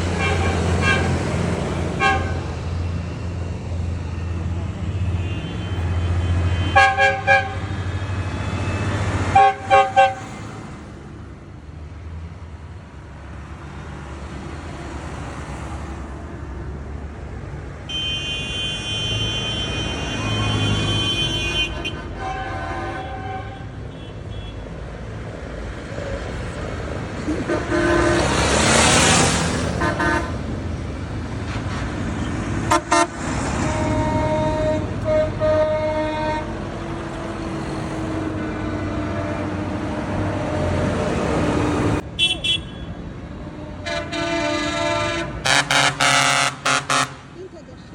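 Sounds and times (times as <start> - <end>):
truck horn toots: 0.1 - 1.2, 2.0 - 2.5, 5.0 - 8.0, 8.8 - 10.3, 17.9 - 24.6, 27.3 - 28.6, 29.8 - 30.4, 32.6 - 36.6, 42.2 - 43.0, 43.6 - 47.3
long many-toned horn blast: 2.0 - 2.5, 4.9 - 10.2, 17.9 - 24.4, 27.4 - 28.6, 29.8 - 30.4, 32.7 - 37.5, 42.2 - 47.2
truck engine rumble: 21.4 - 47.9.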